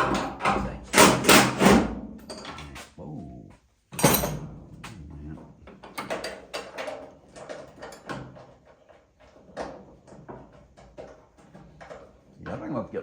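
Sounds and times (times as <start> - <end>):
hand tools knocking and rattling: 0.0 - 2.7, 3.9 - 4.9, 5.6 - 12.5
loud metallic clang: 4.0 - 4.5.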